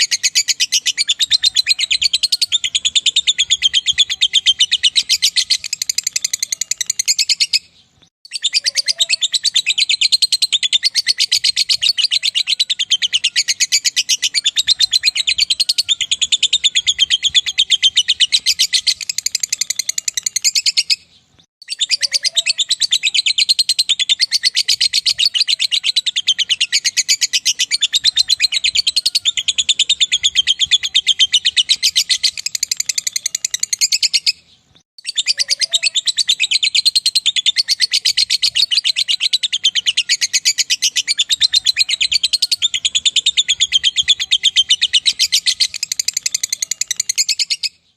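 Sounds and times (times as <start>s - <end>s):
lovebird chattering trill: 0.0s - 47.9s.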